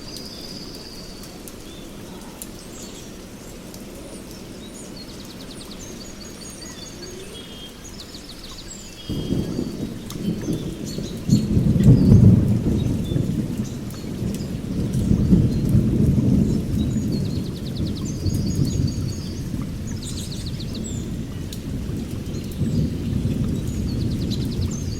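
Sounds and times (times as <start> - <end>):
steady rain: 0.0 - 24.9
rolling thunder: 9.1 - 24.9.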